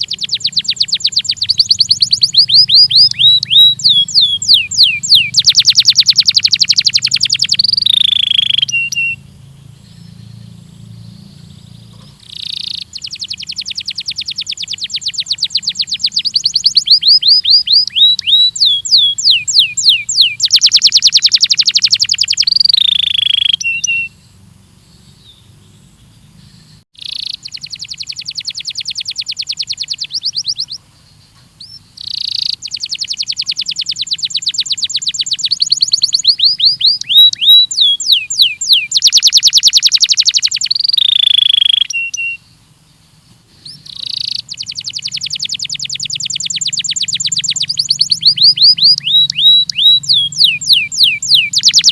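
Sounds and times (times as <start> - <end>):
canary singing trills: 0.0 - 51.9.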